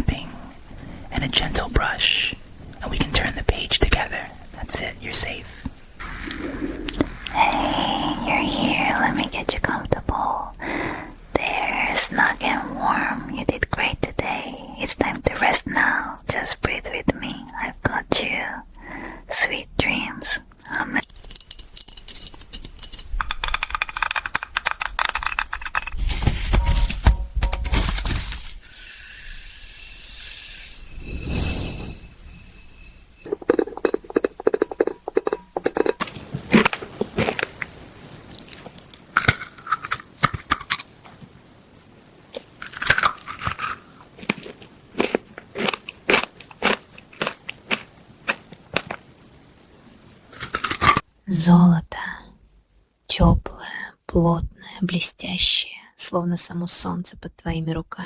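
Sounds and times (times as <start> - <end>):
heavy rumbling: 6.0 - 9.4, 30.6 - 36.0
sharp clicks and rustles: 21.0 - 28.6
crunching and crinkling: 34.8 - 41.2, 42.3 - 49.1.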